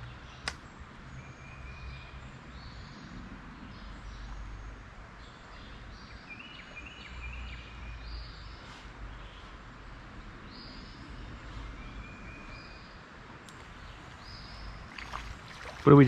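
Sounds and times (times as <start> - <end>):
birds calling: 10.6 - 16.0.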